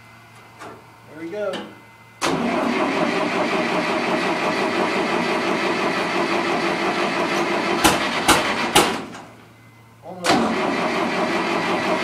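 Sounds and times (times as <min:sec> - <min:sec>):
sharp loud engine pops: 0:07.8 - 0:09.3.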